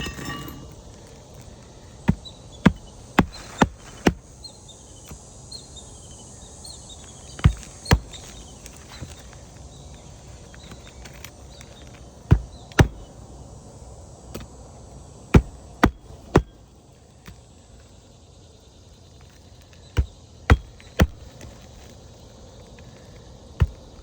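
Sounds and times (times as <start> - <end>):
hammer striking roofing nails: 20.5 - 21.2.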